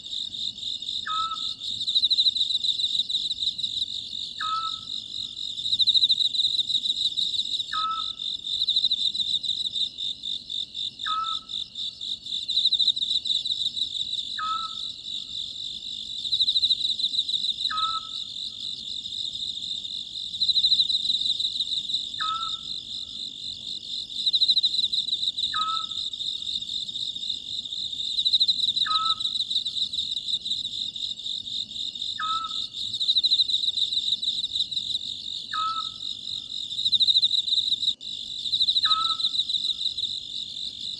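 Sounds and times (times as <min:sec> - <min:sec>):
crickets trilling: 0:00.2 - 0:40.9
owl calling: 0:01.1 - 0:01.6, 0:04.4 - 0:04.9, 0:07.7 - 0:08.2, 0:11.0 - 0:11.5, 0:14.4 - 0:14.9, 0:17.7 - 0:18.2, 0:22.2 - 0:22.7, 0:25.5 - 0:26.0, 0:28.8 - 0:29.3, 0:32.2 - 0:32.7, 0:35.5 - 0:36.0, 0:38.8 - 0:39.3.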